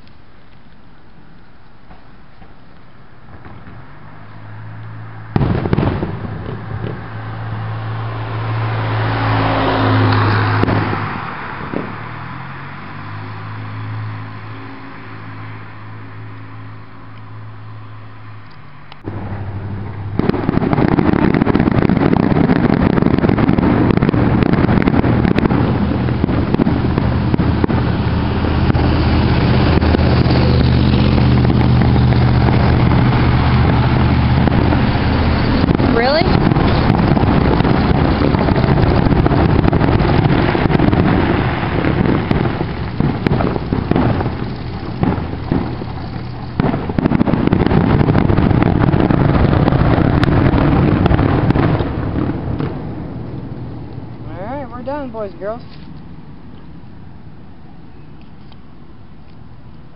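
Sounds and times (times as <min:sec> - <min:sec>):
firework crack: 0:00.0 - 0:59.9
firework bang: 0:03.3 - 0:04.2, 0:05.3 - 0:15.6, 0:19.0 - 0:55.7
fireworks hissing spray: 0:19.0 - 0:52.8.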